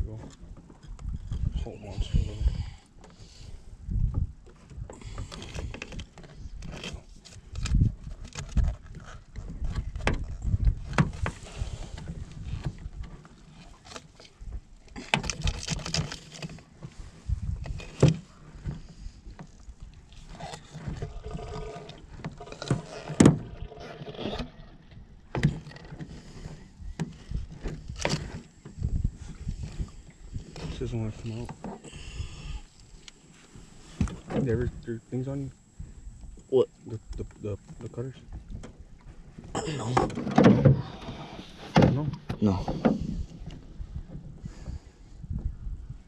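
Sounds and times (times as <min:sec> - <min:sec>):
knocks and thumps on a boat: 0:03.9 - 0:07.0, 0:07.6 - 0:29.9, 0:37.6 - 0:45.6.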